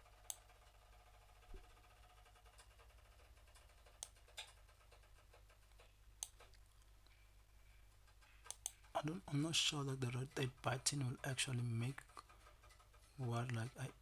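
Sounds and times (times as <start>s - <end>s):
low room hum: 0.0s - 14.0s
computer clicks: 8.4s - 9.0s.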